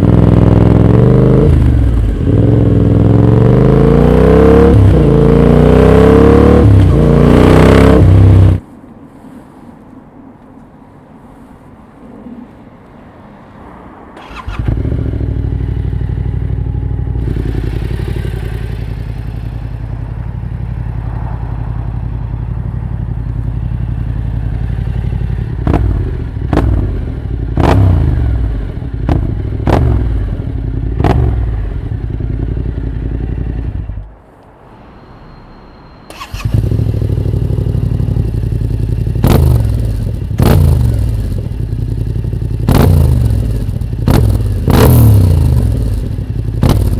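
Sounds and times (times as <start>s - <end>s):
motorcycle engine starting up: 14.2s - 16.0s, 17.2s - 20.0s, 36.1s - 46.9s
motorcycle idling with throttle blips: 14.2s - 34.1s, 36.1s - 46.9s.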